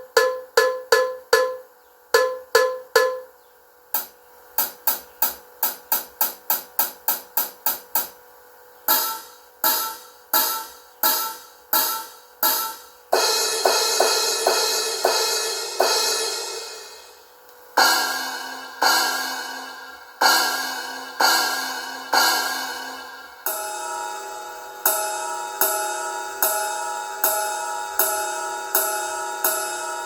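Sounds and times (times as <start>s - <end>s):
cymbals and hi-hat strikes: 0.0s - 30.0s
ringing cymbal wash: 8.8s - 30.0s.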